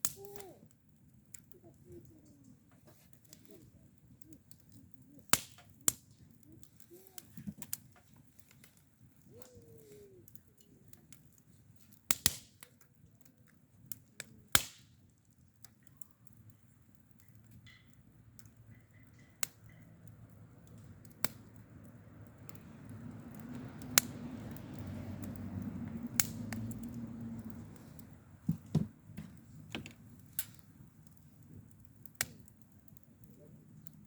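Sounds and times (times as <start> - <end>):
sharp clicks and knocks: 28.4 - 30.6.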